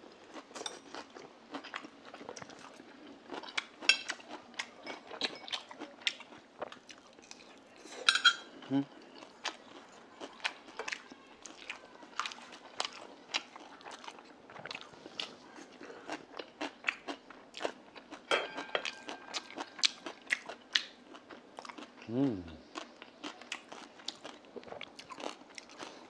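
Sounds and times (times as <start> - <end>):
man chewing food: 0.0 - 26.0.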